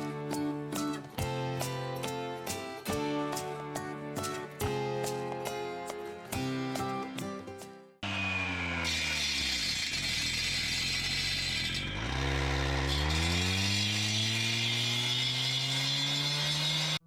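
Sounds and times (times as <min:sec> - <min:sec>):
engine running under load: 0:08.0 - 0:17.0.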